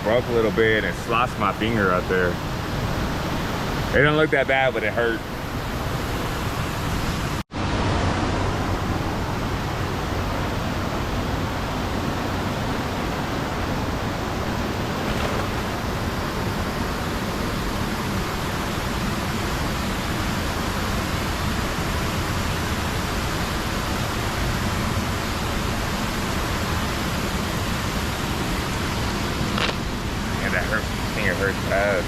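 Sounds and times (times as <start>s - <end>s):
floodwater pouring over spillway: 13.4s - 18.7s.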